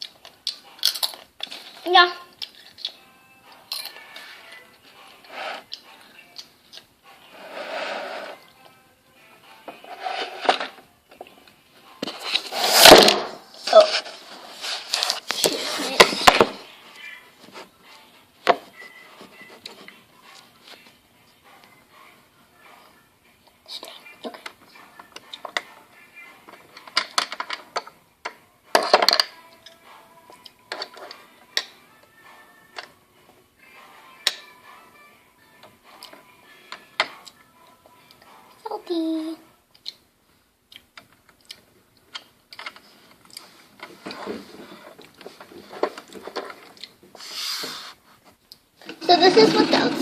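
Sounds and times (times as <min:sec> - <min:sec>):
rustling and scraping: 0:07.3 - 0:08.4, 0:09.7 - 0:10.8, 0:12.0 - 0:16.7, 0:42.7 - 0:50.0.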